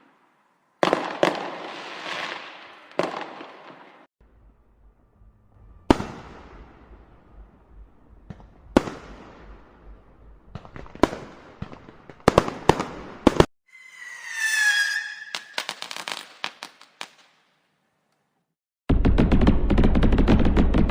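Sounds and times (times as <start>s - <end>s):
firework bangs: 0.8s - 4.1s, 5.9s - 7.0s, 8.3s - 13.5s, 15.2s - 17.4s
firework crackle: 0.8s - 4.1s, 14.6s - 17.4s
low rumble: 4.2s - 11.0s.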